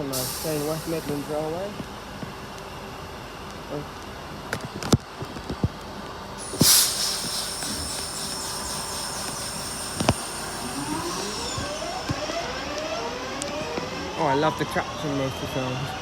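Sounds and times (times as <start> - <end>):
sharp hiss: 0.0 - 1.7, 6.4 - 12.5
electric train whine: 0.0 - 4.4, 6.4 - 16.0
traction motors rising whine: 6.4 - 16.0.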